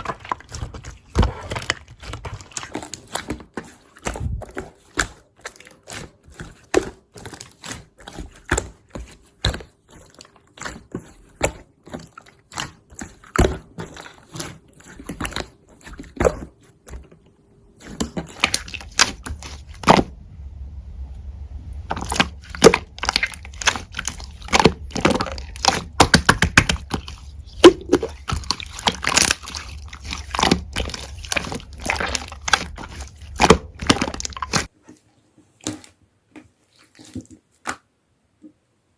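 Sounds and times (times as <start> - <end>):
low hum: 19.7 - 26.0.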